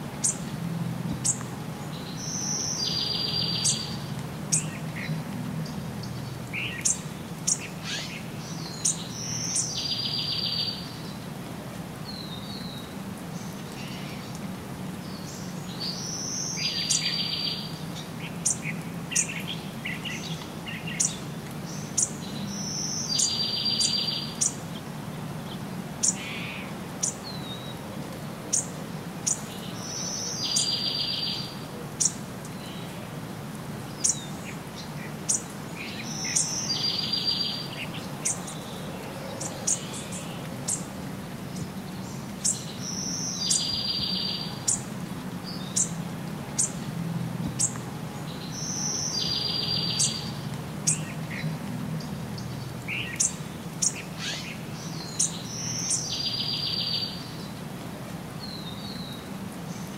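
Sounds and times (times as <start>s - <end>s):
bird song with trill: 0.2s - 0.5s, 1.2s - 11.2s, 15.0s - 24.7s, 28.5s - 32.9s, 34.0s - 40.9s, 41.5s - 46.0s, 47.6s - 51.5s, 52.4s - 57.6s.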